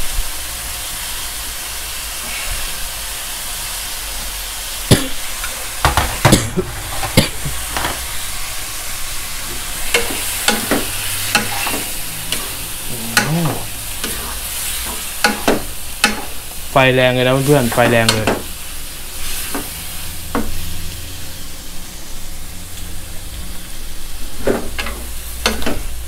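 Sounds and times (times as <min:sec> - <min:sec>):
seafood sizzling in a wok: 0:00.0 - 0:26.0
spatula knocking and scraping pan: 0:05.4 - 0:08.1, 0:09.5 - 0:12.6, 0:13.2 - 0:16.4, 0:24.4 - 0:25.9.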